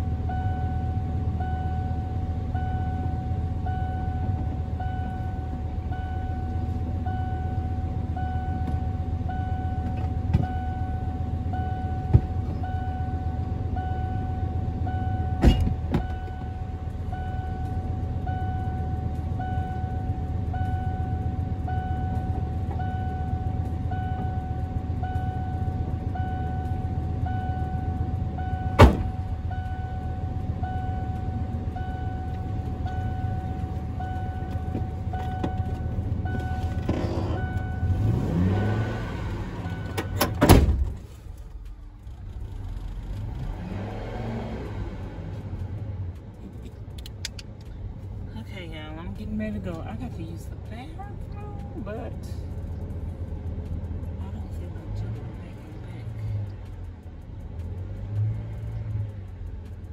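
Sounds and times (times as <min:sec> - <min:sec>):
vehicle engine idling: 0:00.0 - 0:59.9
sharp clicks: 0:45.6 - 0:47.8.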